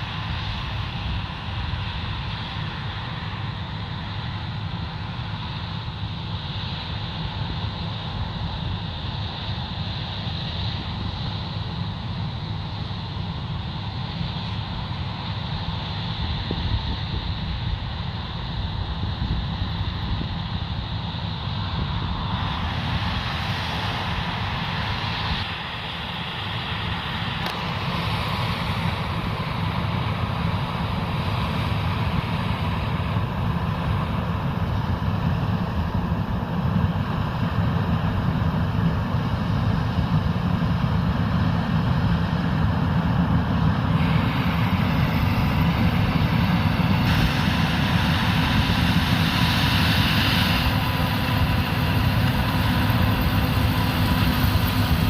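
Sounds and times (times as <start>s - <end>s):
combine harvester running: 10.7s - 55.0s
tractor running: 50.5s - 55.0s.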